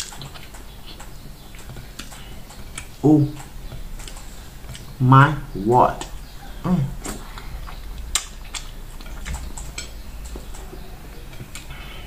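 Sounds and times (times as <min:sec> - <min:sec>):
chewing mouth clicks and smacks: 0:00.0 - 0:02.2, 0:07.0 - 0:10.6.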